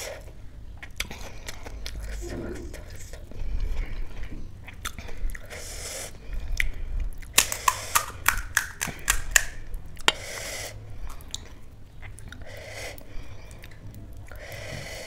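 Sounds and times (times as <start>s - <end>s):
crisp shells crunching while chewing: 6.6s - 9.6s.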